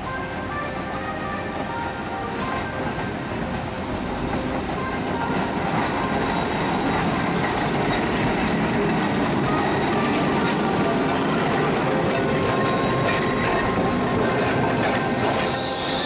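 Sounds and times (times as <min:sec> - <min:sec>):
electric tram on track: 0:00.0 - 0:16.0.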